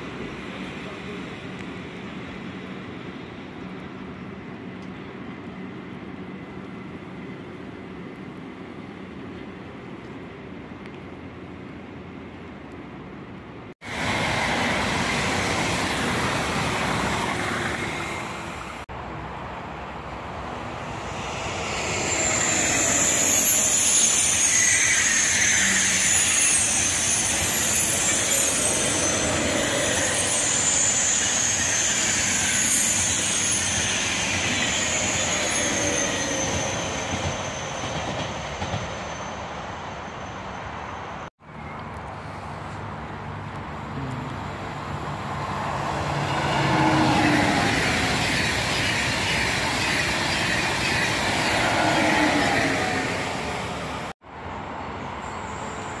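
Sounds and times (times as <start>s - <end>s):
high-speed train rushing past: 0.0s - 41.7s, 44.4s - 56.0s
high whine: 20.8s - 32.3s
falling whistling tones: 21.1s - 39.5s.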